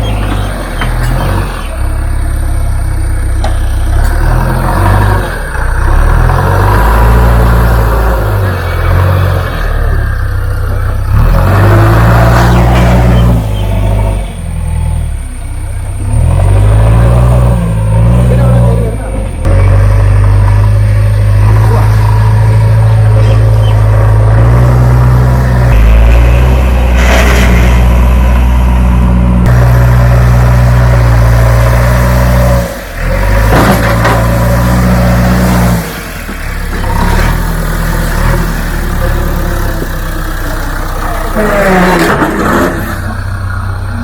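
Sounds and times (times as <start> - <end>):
diesel engine revving: 0.0 - 44.0.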